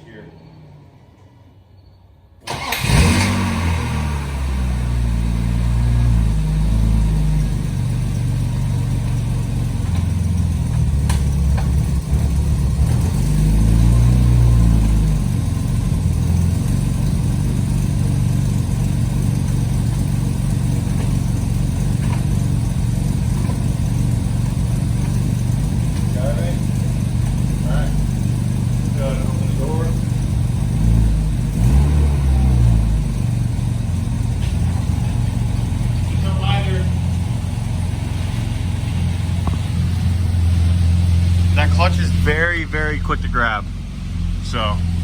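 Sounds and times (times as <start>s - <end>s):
car engine revving and idling: 2.5s - 45.0s.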